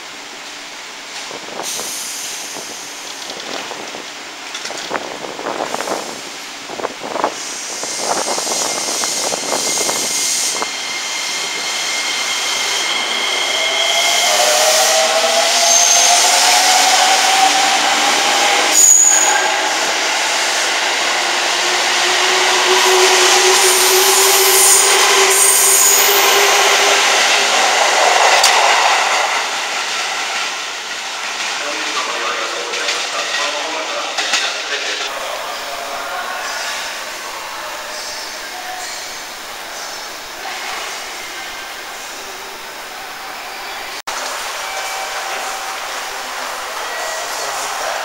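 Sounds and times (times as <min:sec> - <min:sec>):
wheel and rail noise: 0:02.3 - 0:48.0
high wheel squeals: 0:08.1 - 0:16.5, 0:17.2 - 0:20.0, 0:21.0 - 0:28.4.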